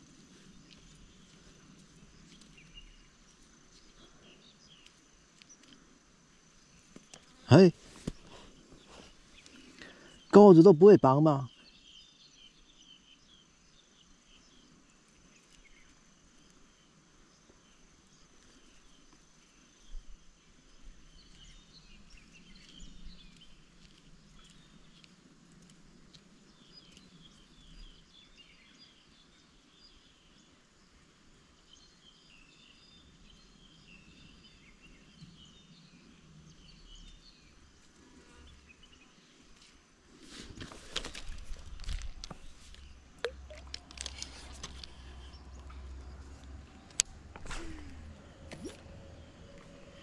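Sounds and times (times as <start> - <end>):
bird chirps: 42.4 - 46.4.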